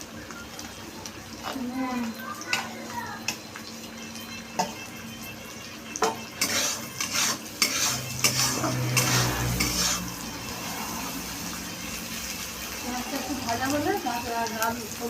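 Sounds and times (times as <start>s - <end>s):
onion frying in oil: 0.0s - 15.0s
metal utensil scraping a pan: 6.0s - 11.5s.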